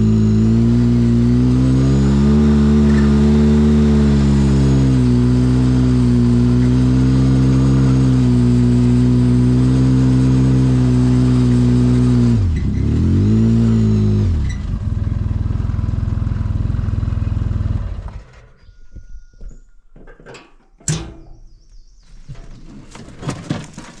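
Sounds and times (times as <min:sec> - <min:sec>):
off-road vehicle engine running: 0:00.0 - 0:18.7.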